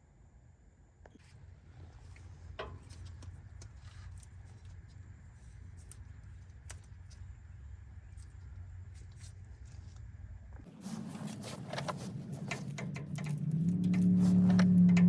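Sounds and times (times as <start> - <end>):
low steady rumble: 0.2 - 15.0
hand tools clicking on metal: 11.2 - 15.0.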